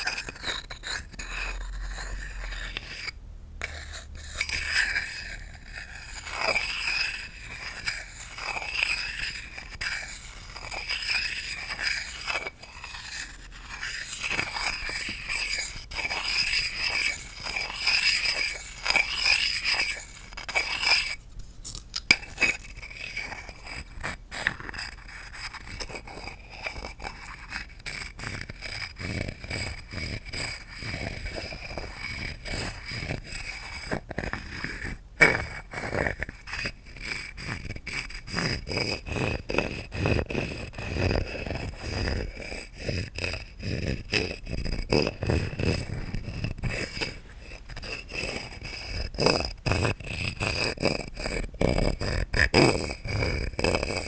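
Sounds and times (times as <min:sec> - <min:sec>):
scratching on wood: 0:00.0 - 0:54.0.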